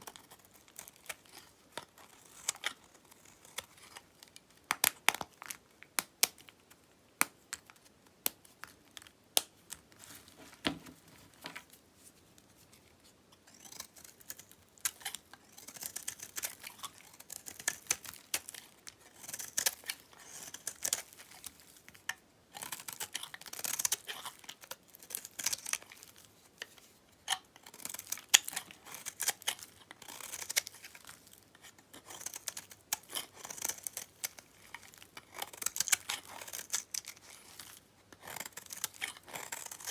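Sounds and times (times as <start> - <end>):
knife cutting through soap: 13.4 - 21.7, 22.5 - 39.9.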